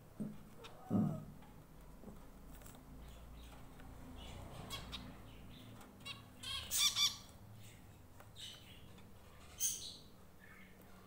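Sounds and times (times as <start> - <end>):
small birds chirping: 2.2 - 11.0.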